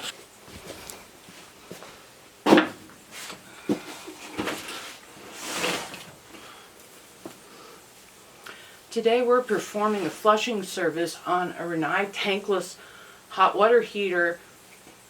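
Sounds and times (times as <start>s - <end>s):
rustling or scraping: 0.0s - 6.3s, 9.5s - 10.5s.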